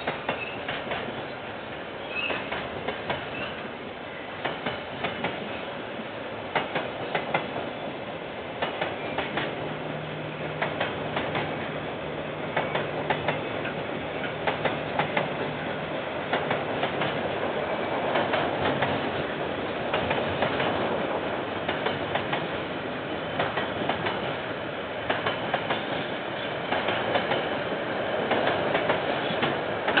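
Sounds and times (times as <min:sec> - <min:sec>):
train wheels rumbling: 0:00.0 - 0:30.0
wheels clacking over rail joints: 0:10.5 - 0:11.7, 0:12.4 - 0:15.6, 0:25.0 - 0:27.6.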